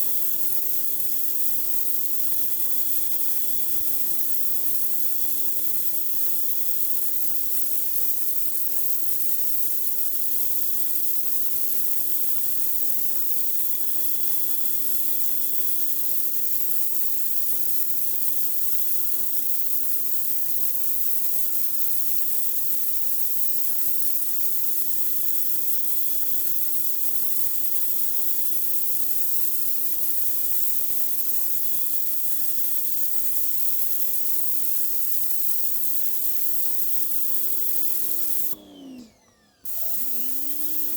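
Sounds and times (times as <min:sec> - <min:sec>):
pressure washer jet hissing: 0:37.0 - 0:40.9.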